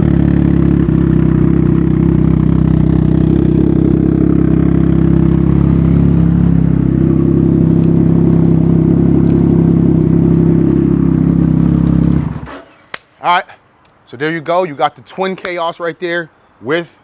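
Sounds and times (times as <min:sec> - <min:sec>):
engine idling with loud exhaust: 0:00.0 - 0:12.9.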